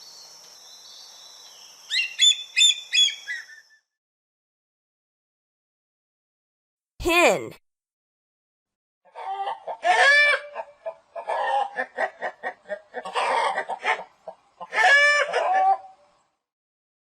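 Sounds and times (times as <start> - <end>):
hen cackling: 9.1 - 16.0
hen clucking: 9.1 - 16.0.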